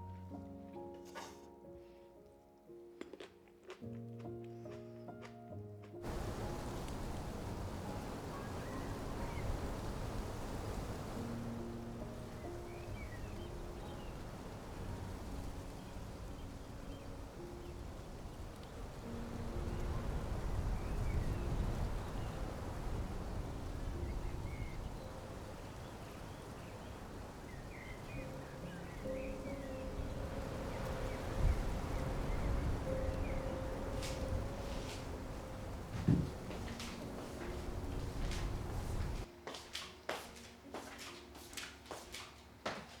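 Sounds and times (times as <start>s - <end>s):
faint bird chirps: 7.6s - 10.2s.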